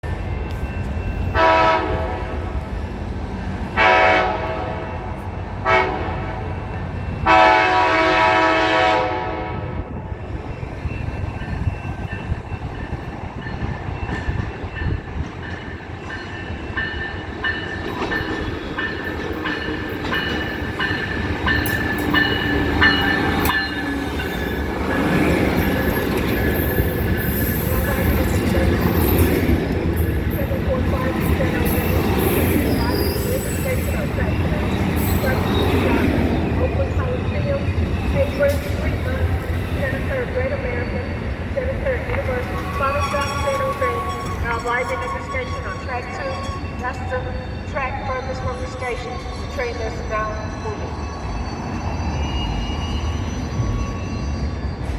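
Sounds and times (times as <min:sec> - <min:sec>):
train rumbling over rails: 0:00.0 - 0:54.9
locomotive horn blasts: 0:01.4 - 0:02.5, 0:03.8 - 0:05.0, 0:05.6 - 0:06.4, 0:07.2 - 0:09.8
high-pitched wheel squeals: 0:31.3 - 0:38.6, 0:42.3 - 0:47.7, 0:50.6 - 0:54.9.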